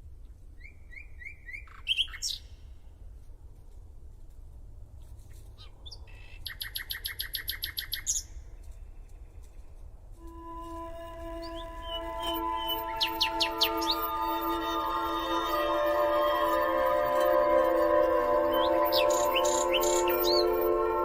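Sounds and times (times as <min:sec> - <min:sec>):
nightingale singing: 0:00.6 - 0:02.6, 0:05.6 - 0:09.6, 0:10.2 - 0:21.0
sustained musical tones: 0:10.2 - 0:21.0.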